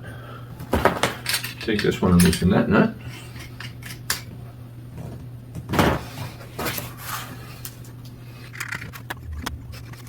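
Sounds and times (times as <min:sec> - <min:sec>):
metal wrenches clinking on nuts: 0:01.0 - 0:04.3.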